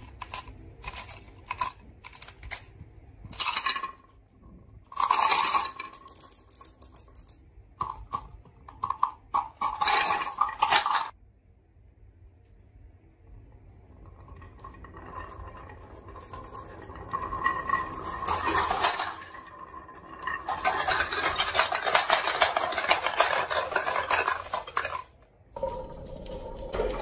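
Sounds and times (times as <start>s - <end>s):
marbles clattering down a run: 14.5s - 27.0s.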